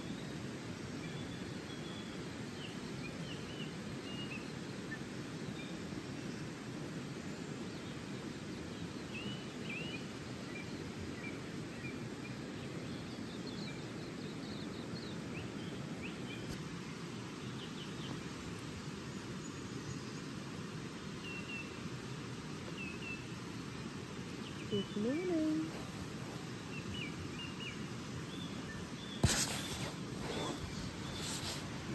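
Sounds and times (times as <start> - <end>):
birds chirping: 24.4 - 31.9.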